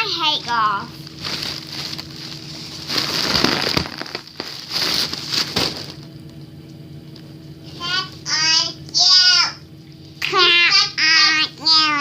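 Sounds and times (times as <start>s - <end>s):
foil balloon crinkling: 1.0s - 6.2s.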